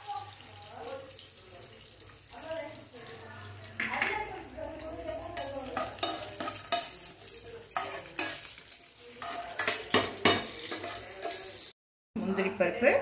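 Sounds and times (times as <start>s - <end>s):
cashews sizzling in ghee: 0.0s - 11.8s
utensil clicking against pan: 5.4s - 7.0s, 7.8s - 8.5s, 9.2s - 11.6s.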